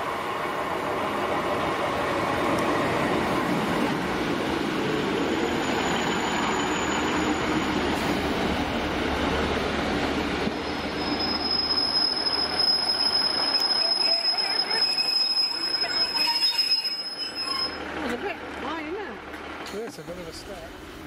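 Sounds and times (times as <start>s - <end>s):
train engine and wheels rumble: 0.0s - 21.0s
thin high squeal: 10.6s - 17.9s.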